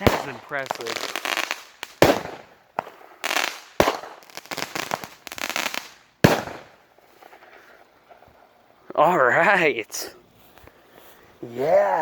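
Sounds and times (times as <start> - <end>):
fireworks bangs: 0.0 - 8.3
fireworks crackling bursts: 0.0 - 8.5.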